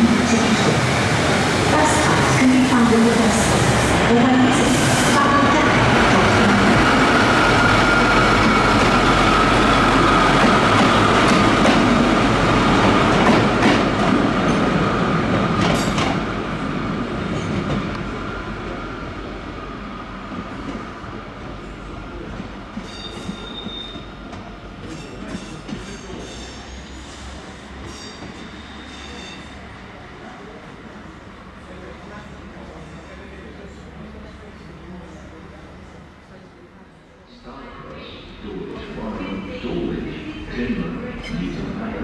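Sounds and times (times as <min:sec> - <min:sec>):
train rumbling on rails: 0:00.0 - 0:42.0
high wheel squeal: 0:22.8 - 0:24.1, 0:25.9 - 0:29.6.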